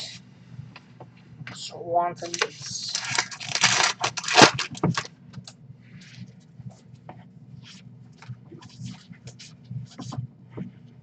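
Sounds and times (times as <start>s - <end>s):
cards rustling and clicking: 2.3s - 5.5s.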